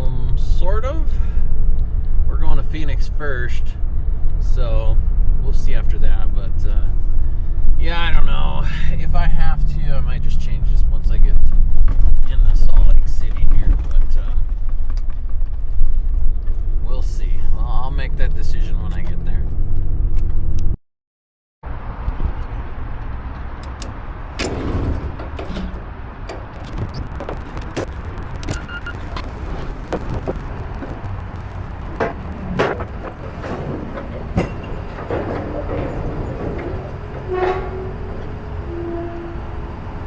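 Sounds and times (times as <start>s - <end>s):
moving vehicle low rumble: 0.0s - 20.8s, 21.6s - 40.0s
clicks and knocks: 23.6s - 37.8s
short tone: 28.5s - 29.0s.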